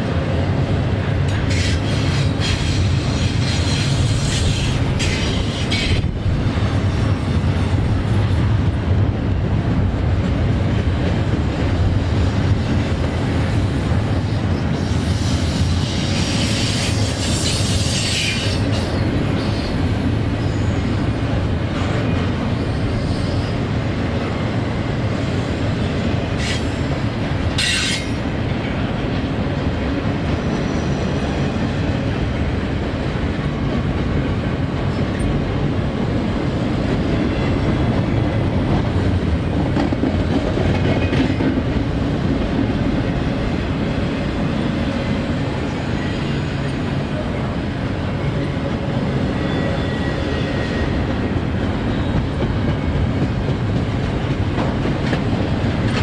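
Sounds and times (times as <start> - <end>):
freight train wheels rumbling: 0.0 - 56.0
rail joints clickety-clack: 0.0 - 56.0.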